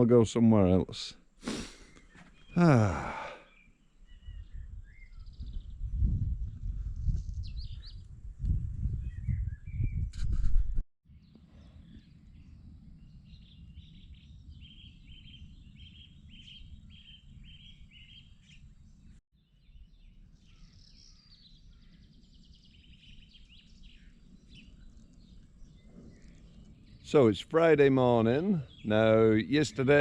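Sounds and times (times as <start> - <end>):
bird chirping: 1.8 - 6.0, 11.1 - 30.0
birds singing faintly: 1.8 - 10.1, 11.1 - 30.0.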